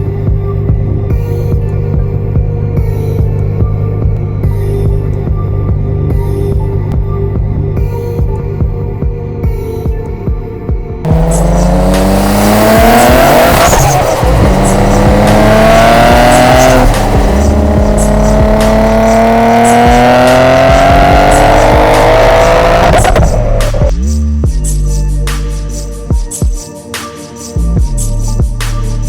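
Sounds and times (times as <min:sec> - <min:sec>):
car accelerating through gears: 0:11.1 - 0:23.9.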